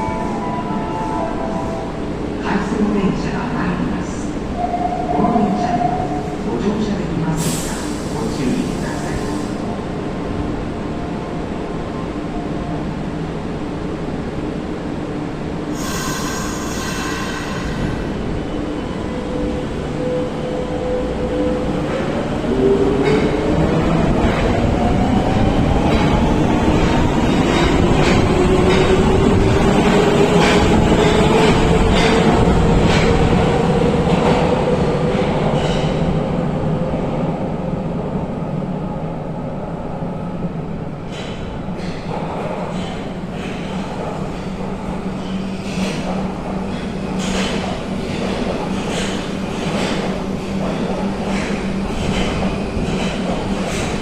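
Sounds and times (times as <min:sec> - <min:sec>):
heavy train rumble: 0:00.0 - 0:54.0
hiss: 0:15.8 - 0:17.6.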